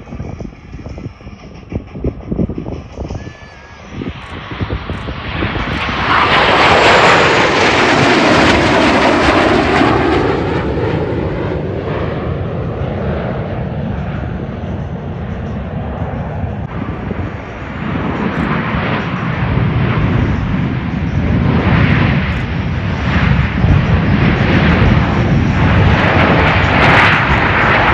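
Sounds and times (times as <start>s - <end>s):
jets flying past: 0.0s - 27.9s.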